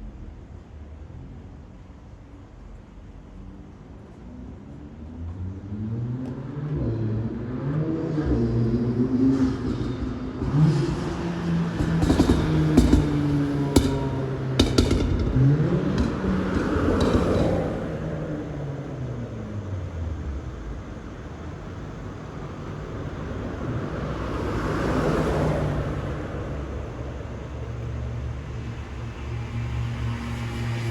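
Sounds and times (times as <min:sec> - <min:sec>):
car engine and exhaust hum: 0:00.0 - 0:30.9
car exhaust revving: 0:07.6 - 0:22.6
exhaust pops: 0:09.6 - 0:19.5.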